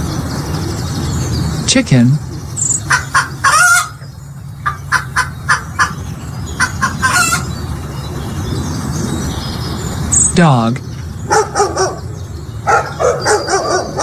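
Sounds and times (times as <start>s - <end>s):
chicken clucking: 2.5s - 7.6s.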